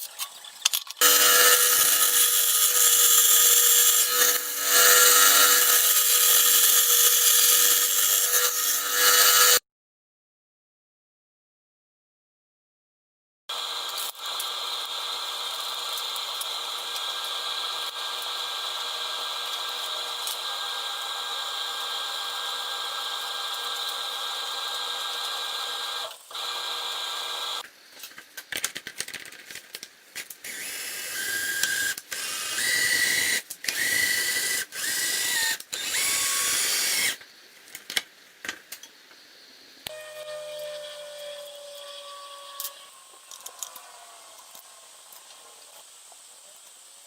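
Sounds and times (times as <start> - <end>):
small electric motor whining: 1.0 - 9.6, 30.5 - 37.2, 39.9 - 45.6.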